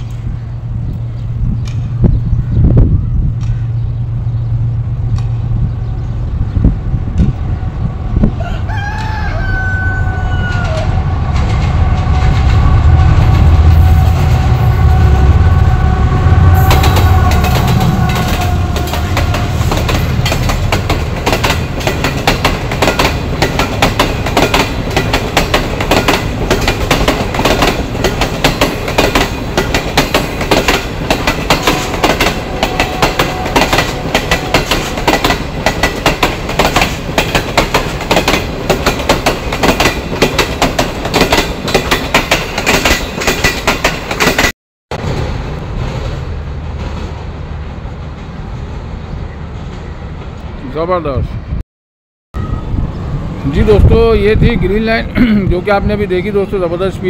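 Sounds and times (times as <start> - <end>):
train horn: 7.8 - 20.2, 31.5 - 35.0
locomotive engine rumble: 10.0 - 41.7
wheels clattering over rail joints: 16.8 - 44.5.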